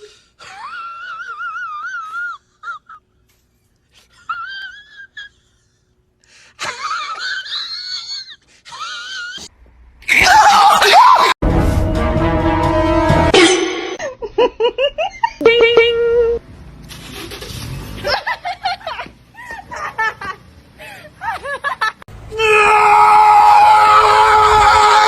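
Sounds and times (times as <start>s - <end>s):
music: 11.4s - 13.4s.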